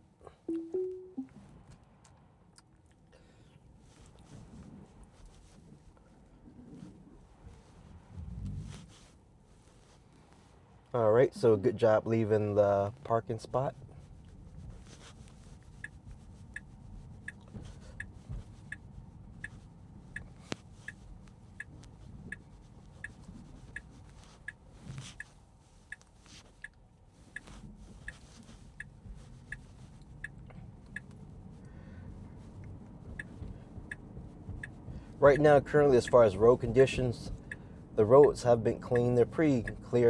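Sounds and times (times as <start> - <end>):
turn signal ticking: 0.5 - 1.4, 14.2 - 40.0
low road rumble: 4.1 - 40.0.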